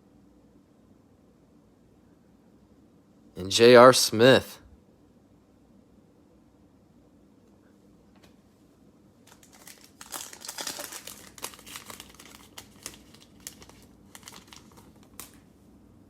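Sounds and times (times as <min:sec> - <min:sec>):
cellophane wrapper crinkling and tearing: 0:09.2 - 0:15.4.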